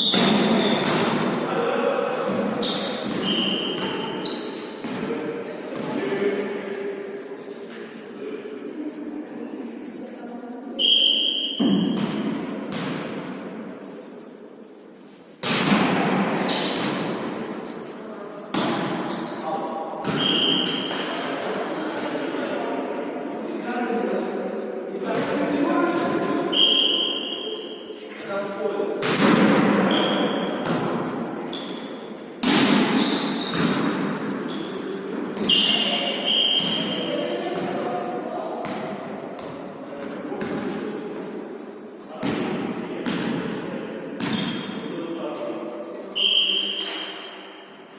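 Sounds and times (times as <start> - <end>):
ball thuds echoing in hall: 0.0 - 6.5, 10.8 - 14.0, 15.3 - 21.8, 25.0 - 27.4, 28.3 - 47.7
background murmur: 0.0 - 47.9
shoes squeaking on court: 2.6 - 4.9, 17.6 - 18.3, 19.0 - 21.0, 31.4 - 32.3, 32.9 - 37.1.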